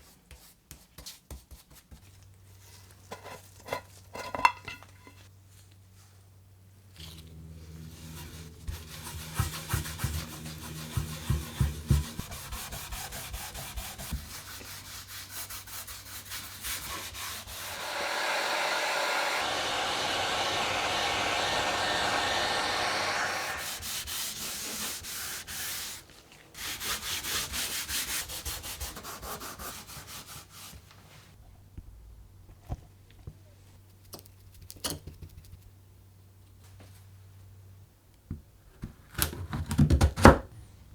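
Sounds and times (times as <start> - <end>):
sanding abrasive rubbing: 7.5 - 26.0.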